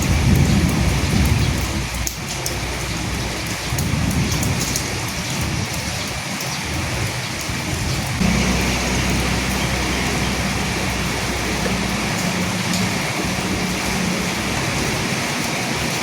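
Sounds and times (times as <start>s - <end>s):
distant thunder rumble: 0.0s - 16.0s
rain falling: 0.0s - 16.0s.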